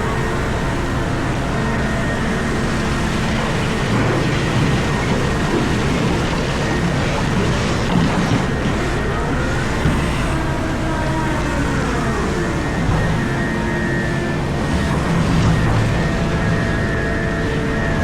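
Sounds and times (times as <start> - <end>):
heavy machine drone: 0.0 - 18.0.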